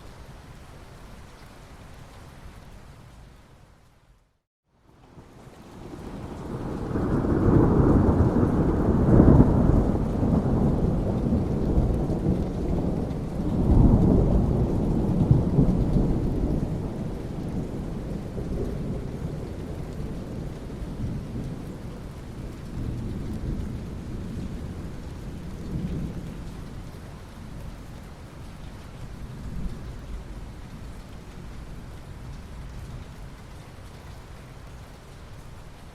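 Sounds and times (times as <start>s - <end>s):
steady rain: 0.0s - 35.9s
thunder rolling: 6.2s - 21.5s.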